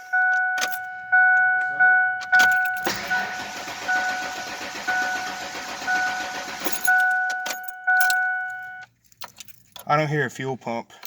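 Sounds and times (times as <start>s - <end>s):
dashboard warning chime: 0.0s - 8.9s
engine cranking on starter: 2.4s - 7.4s.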